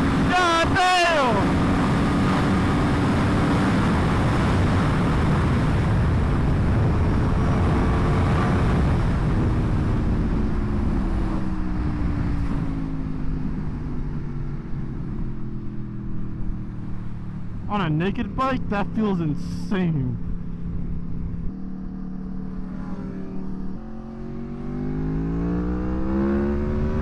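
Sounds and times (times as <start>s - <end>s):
wind rush: 0.0s - 12.9s
motorcycle engine at speed: 0.0s - 27.0s.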